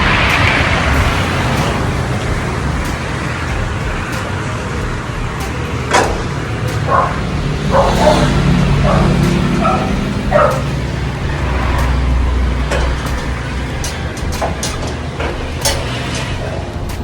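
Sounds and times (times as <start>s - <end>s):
low traffic rumble: 0.0s - 17.0s
dog barking: 6.8s - 10.8s.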